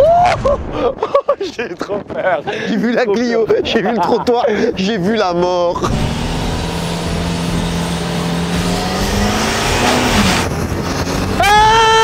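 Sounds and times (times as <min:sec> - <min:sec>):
road and wind noise: 0:01.5 - 0:12.0
car engine under load: 0:05.7 - 0:11.9.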